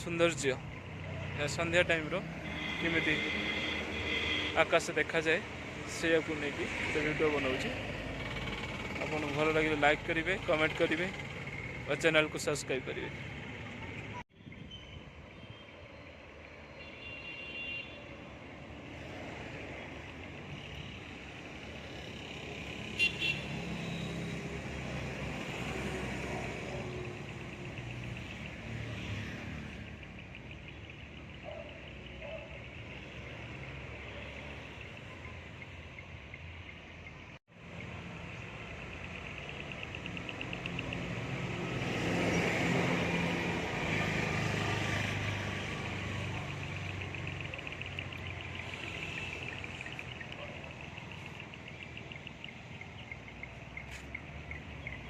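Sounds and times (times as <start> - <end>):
road traffic rumble: 0.0 - 55.0
car horn toots: 2.4 - 4.6
vehicle passing: 37.8 - 55.0.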